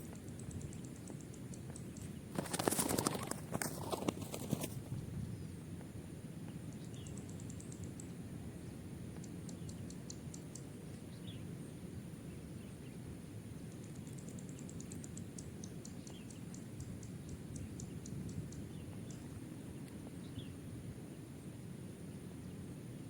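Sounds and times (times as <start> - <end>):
rapid high-pitched ticks: 0.0 - 3.4, 6.7 - 8.2, 9.2 - 10.7, 13.7 - 19.2.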